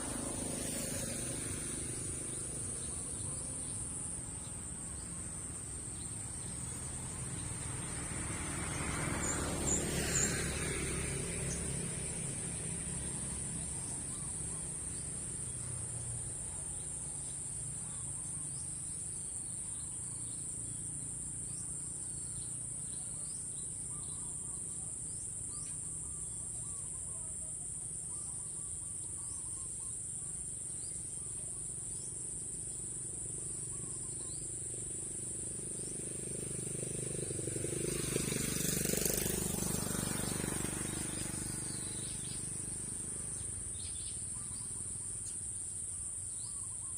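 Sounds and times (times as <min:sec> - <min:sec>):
vehicle passing: 0:00.0 - 0:17.6, 0:33.2 - 0:45.2
faint bird chirps: 0:40.9 - 0:46.9.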